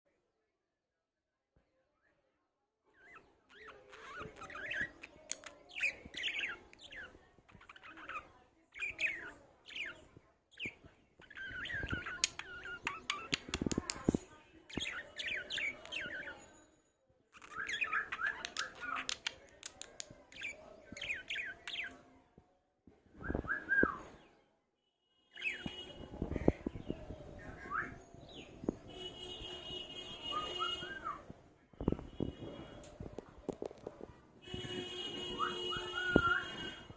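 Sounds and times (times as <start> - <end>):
parrot chirping and chattering: 2.9 - 16.5, 17.3 - 22.0
parrot clicks: 18.3 - 20.1.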